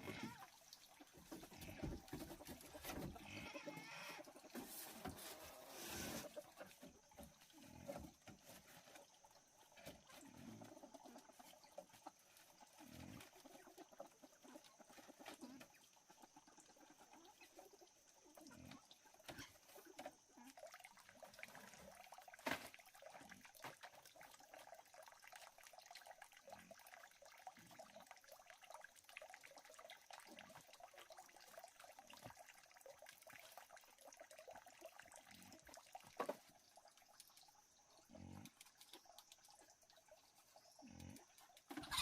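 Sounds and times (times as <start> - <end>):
chorus of calling animals: 0.0 - 8.3, 9.4 - 22.1, 40.3 - 42.0.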